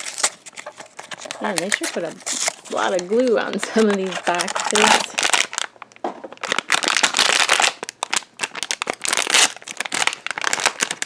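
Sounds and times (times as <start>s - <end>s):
cardboard box crackling: 0.0s - 5.7s.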